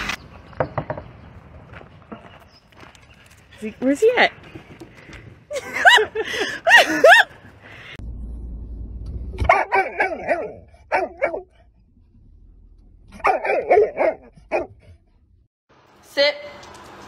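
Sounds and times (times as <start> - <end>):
low engine rumble: 7.5 - 13.4
dog barking and whining: 9.4 - 11.6, 13.1 - 15.0.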